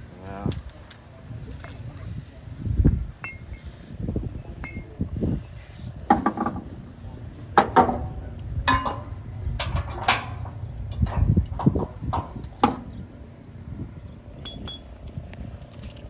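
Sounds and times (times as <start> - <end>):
steady low rumble: 6.7 - 16.0
sharp metallic clinks and knocks: 7.6 - 12.9, 14.4 - 16.0.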